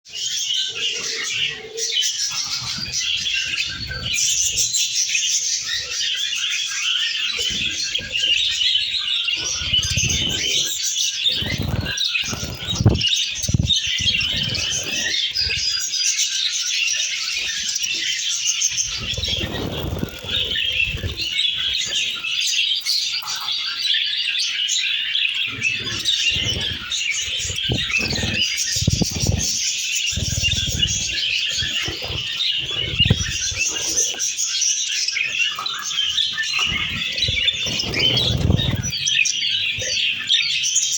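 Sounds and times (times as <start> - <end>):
lovebirds chirping: 0.1 - 40.9
wing flapping: 9.3 - 15.9, 18.7 - 22.2, 25.5 - 34.3, 36.6 - 39.1.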